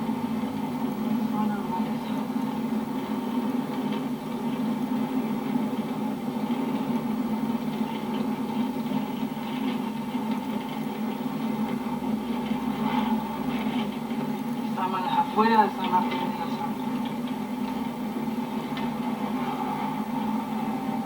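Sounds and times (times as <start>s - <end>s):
road noise: 11.9s - 21.0s.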